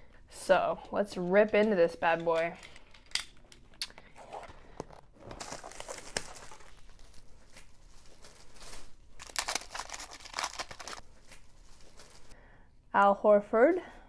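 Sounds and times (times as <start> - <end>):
plastic wrapping tearing and crinkling: 5.2 - 12.4.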